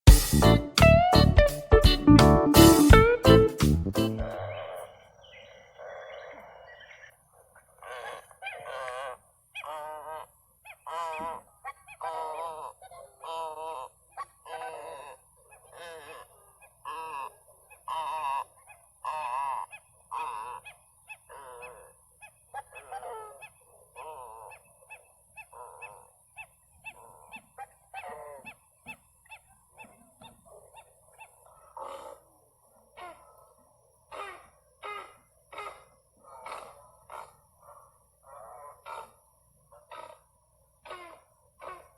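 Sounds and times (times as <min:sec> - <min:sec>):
birds honking: 0:07.9 - 0:30.4, 0:34.1 - 0:41.9.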